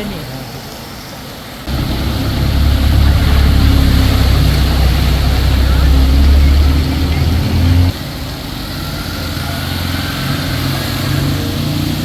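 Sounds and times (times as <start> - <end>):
steady hiss: 0.0 - 12.0
loud low rumble: 1.7 - 8.7
vehicle engine running: 1.7 - 9.9.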